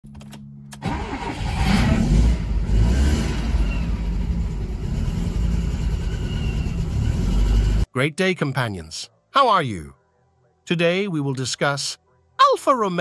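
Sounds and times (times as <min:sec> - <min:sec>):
car engine starting and idling: 0:00.1 - 0:07.9.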